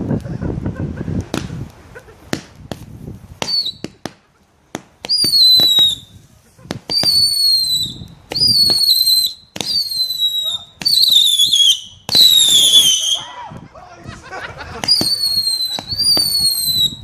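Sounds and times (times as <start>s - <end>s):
fireworks cracking: 0.0s - 17.0s
fireworks whistling: 2.4s - 13.3s, 14.7s - 17.0s.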